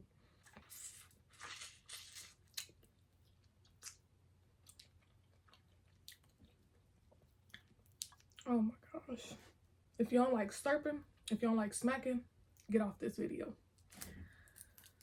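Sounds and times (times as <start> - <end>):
wet chewing mouth sounds: 0.5 - 8.5.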